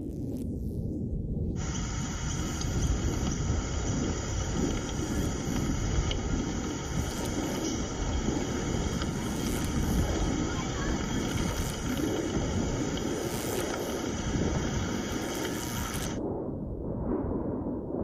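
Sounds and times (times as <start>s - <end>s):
constant low rumble: 0.0s - 18.0s
high-pitched insect buzzing: 9.1s - 12.2s, 15.2s - 16.2s.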